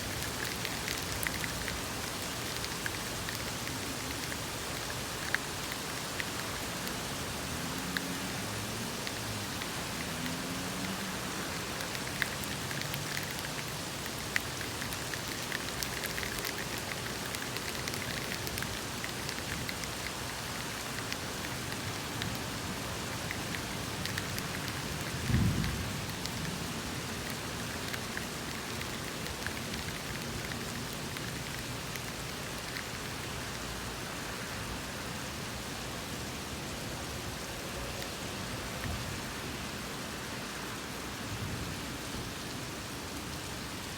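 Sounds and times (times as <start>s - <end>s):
drips ticking: 0.0s - 33.6s
steady rain: 0.0s - 43.9s.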